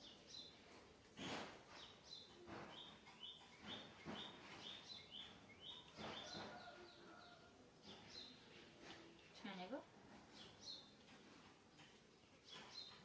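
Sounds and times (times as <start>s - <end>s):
small bird chirping: 1.7s - 8.7s, 11.8s - 13.0s.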